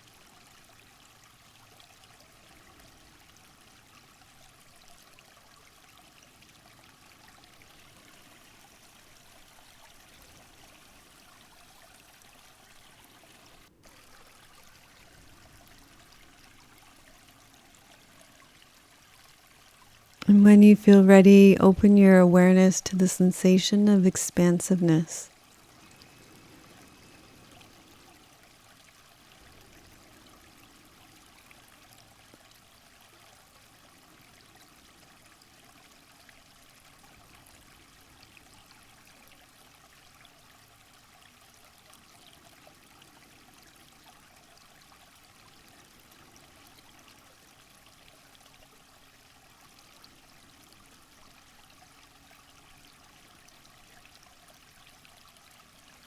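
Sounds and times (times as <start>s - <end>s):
running water: 21.4s - 56.0s.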